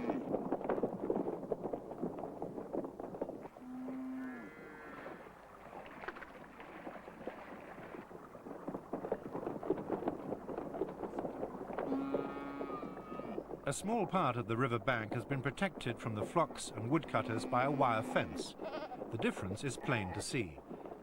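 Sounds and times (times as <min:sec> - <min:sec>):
hooves knocking on track: 0:00.0 - 0:21.0
cow mooing: 0:03.6 - 0:05.2, 0:11.9 - 0:13.4.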